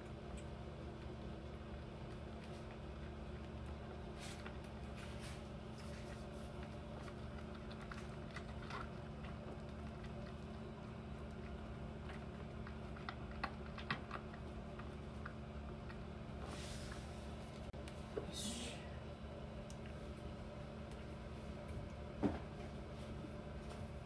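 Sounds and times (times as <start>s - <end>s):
kitten suckling on bottle: 2.1s - 16.5s.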